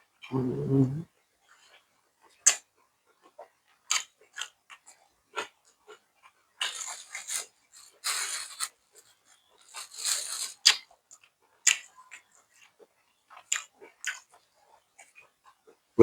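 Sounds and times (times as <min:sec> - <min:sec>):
person crunching and chewing food: 0:03.2 - 0:15.8
wet mouth smacks and clicks: 0:03.9 - 0:04.6, 0:10.6 - 0:10.8, 0:11.6 - 0:11.9.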